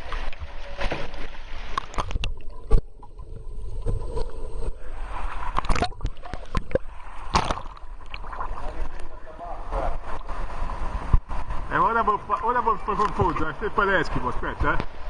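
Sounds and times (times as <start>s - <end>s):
paddle splashing water: 5.0s - 13.8s.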